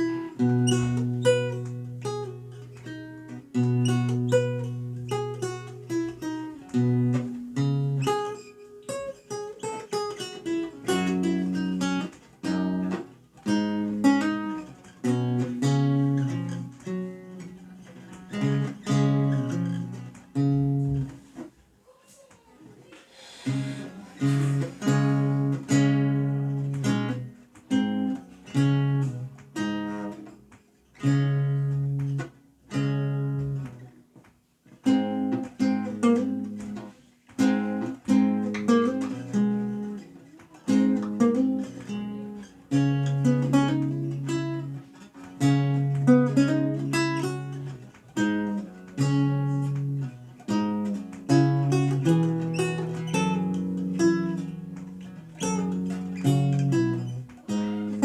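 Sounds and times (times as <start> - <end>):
lute playing: 0.0 - 21.2, 23.3 - 30.3.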